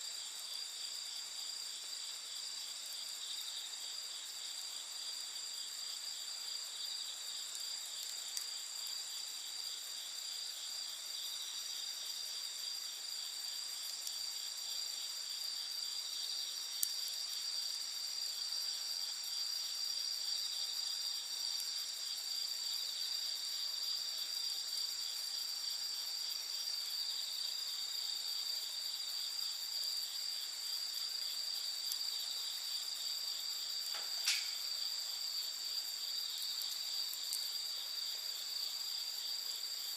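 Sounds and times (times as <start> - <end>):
crickets trilling: 0.0 - 39.9
campfire popping: 7.4 - 8.6, 33.9 - 34.9, 37.1 - 37.5.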